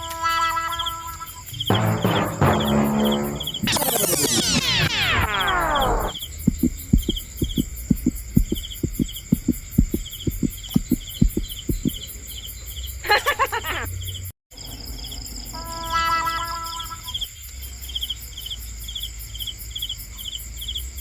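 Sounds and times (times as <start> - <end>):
cricket chirping: 0.0 - 21.0
constant high whine: 1.6 - 10.5
brief warbling sound: 1.7 - 6.2
falling glide sweep: 2.2 - 6.2
low soft thumps: 4.3 - 12.0.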